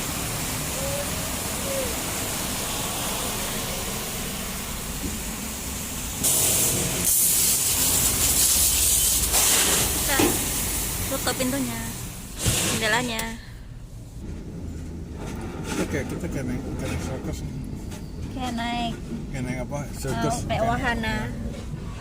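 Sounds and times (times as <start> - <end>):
pressure washer water spray hissing: 0.0 - 12.9.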